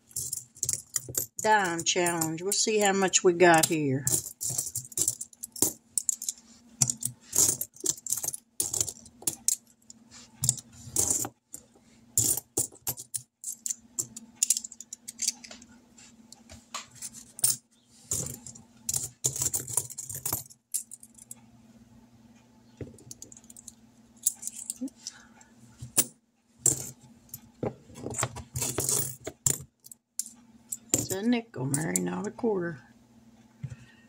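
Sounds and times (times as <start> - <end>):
coins clinking and jingling: 0.0 - 9.7, 10.4 - 11.4, 12.2 - 15.4, 17.0 - 21.3, 23.0 - 25.0, 26.0 - 27.0, 28.5 - 29.6
faint steady hum: 0.0 - 34.0.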